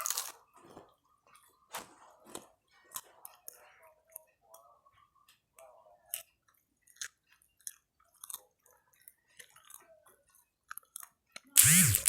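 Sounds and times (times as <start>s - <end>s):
person chewing crunchy snacks: 0.0s - 0.4s.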